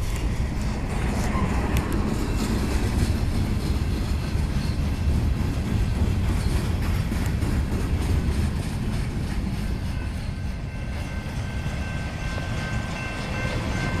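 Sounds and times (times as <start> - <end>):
train wheels rumbling on rail: 0.0 - 14.0
faint high wheel squeal: 1.2 - 1.8, 3.8 - 5.2, 9.5 - 14.0.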